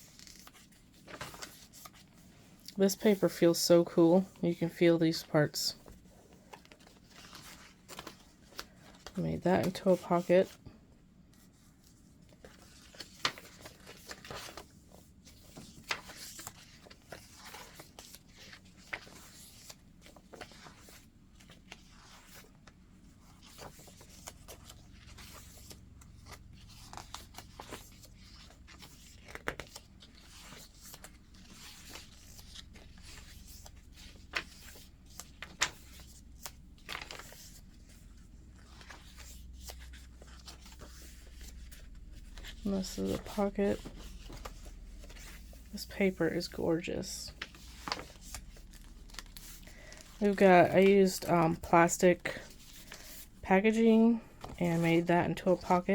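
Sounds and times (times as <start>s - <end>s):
paper pages rustling: 0.0s - 2.3s, 5.1s - 10.6s, 11.3s - 55.9s
pages snapping as they flip: 23.4s - 38.0s, 47.4s - 50.2s.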